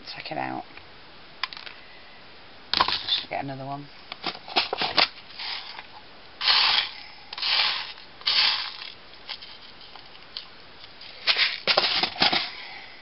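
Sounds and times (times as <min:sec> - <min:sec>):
chipboard scraping: 0:04.4 - 0:10.2, 0:11.1 - 0:12.7.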